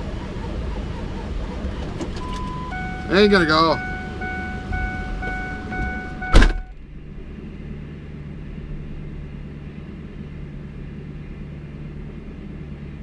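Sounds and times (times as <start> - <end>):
low hum: 0.0 - 13.0
truck warning chime: 2.2 - 6.8
door slamming shut: 6.3 - 6.7.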